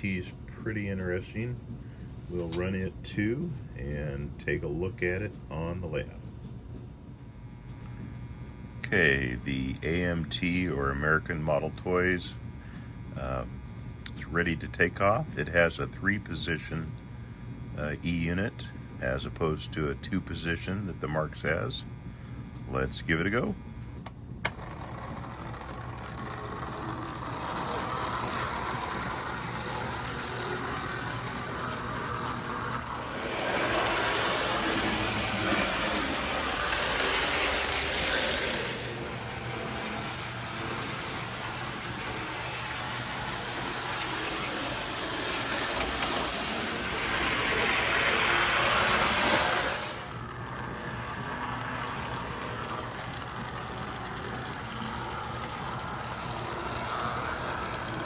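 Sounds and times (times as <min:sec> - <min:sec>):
model train motor hum: 0:00.0 - 0:06.2, 0:22.8 - 0:58.0
wheels rattling on rails: 0:24.6 - 0:58.0.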